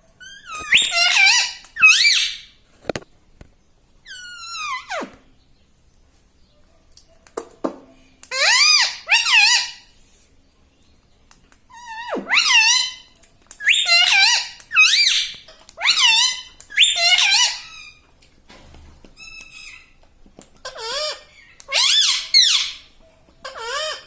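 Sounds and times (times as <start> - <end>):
parrot squeaky calls: 0.2 - 2.6, 4.0 - 5.1, 8.3 - 9.9, 11.7 - 18.0, 19.2 - 20.0, 20.6 - 24.0.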